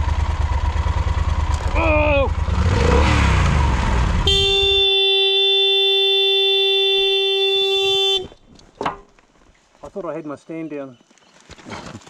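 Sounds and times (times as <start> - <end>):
motorcycle engine running: 0.0 - 8.4
motorcycle horn blaring: 4.1 - 8.4.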